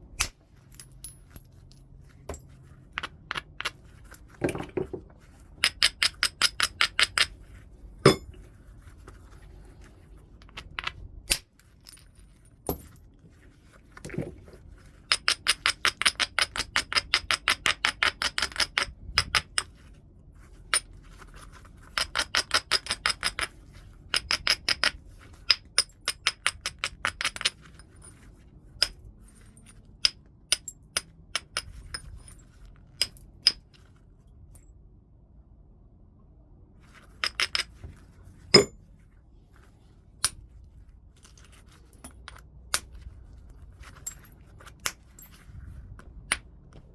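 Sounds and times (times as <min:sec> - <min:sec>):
hard tools clicking against stone: 0:05.6 - 0:07.3.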